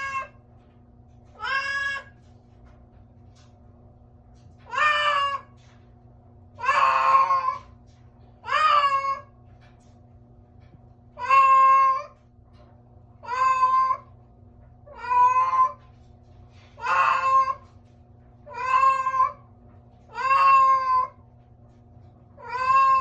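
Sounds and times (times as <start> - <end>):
cat meowing: 0.0 - 0.4, 1.4 - 2.2, 4.7 - 5.6, 6.6 - 7.8, 8.4 - 9.3, 11.2 - 12.2, 13.2 - 14.2, 14.9 - 15.9, 16.8 - 17.7, 18.5 - 19.5, 20.1 - 21.2, 22.4 - 23.0.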